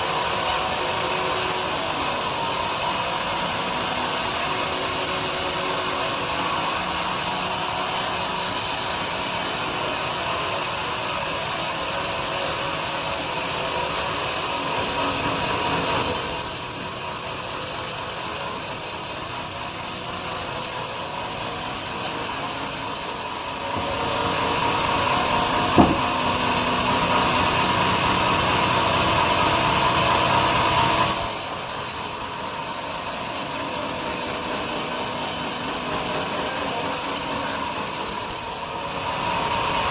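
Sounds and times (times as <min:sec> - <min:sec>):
bandsaw cutting log: 0:00.0 - 0:39.9
sharp knock: 0:25.7 - 0:26.4.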